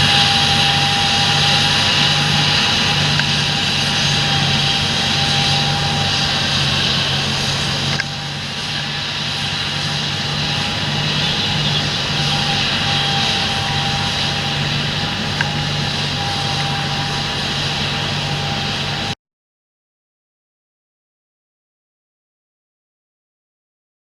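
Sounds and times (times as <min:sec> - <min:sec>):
tractor diesel engine droning: 0:00.0 - 0:19.2.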